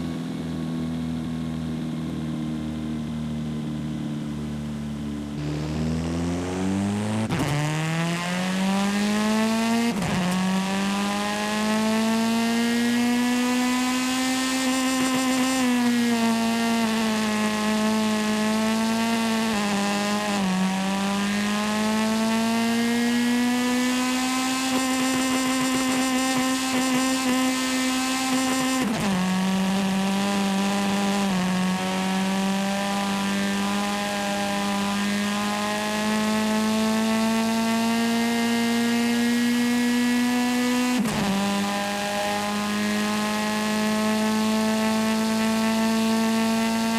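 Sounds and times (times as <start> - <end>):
video game car engine revving: 0.0 - 46.9.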